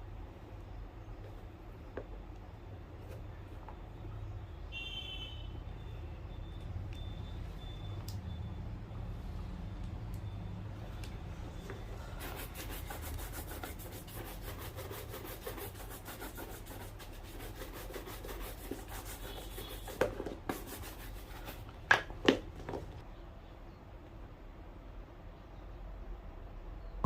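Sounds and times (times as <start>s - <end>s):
brush strokes on a shoe: 11.7s - 21.7s.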